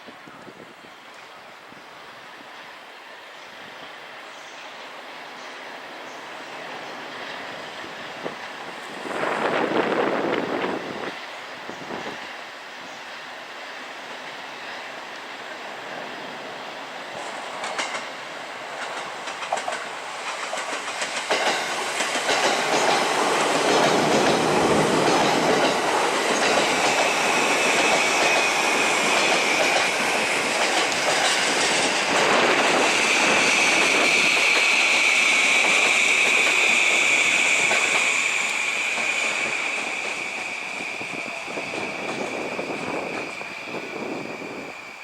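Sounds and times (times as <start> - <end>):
train cars running past: 2.0 - 45.0
train wheels clicking over rail joints: 17.1 - 44.4
high brake squeal: 32.8 - 45.0.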